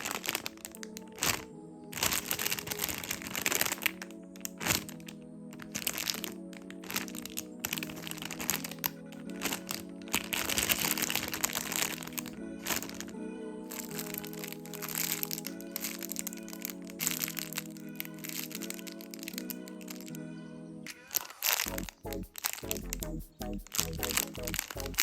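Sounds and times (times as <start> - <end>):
crackling and crinkling: 0.0 - 20.2, 20.9 - 25.0
background music sustained tones: 0.0 - 25.0.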